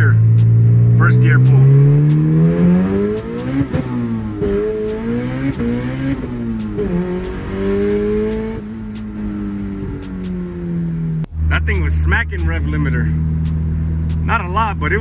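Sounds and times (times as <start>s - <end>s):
man talking: 0.0s - 0.2s, 1.0s - 1.7s, 11.5s - 13.2s, 14.2s - 15.0s
car engine accelerating hard: 0.0s - 15.0s.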